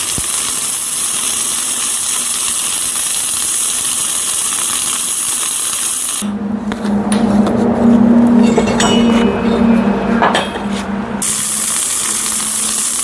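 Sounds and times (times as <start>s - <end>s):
welding arc hissing: 0.0s - 6.2s, 11.2s - 13.0s
low steady hum: 6.2s - 11.3s.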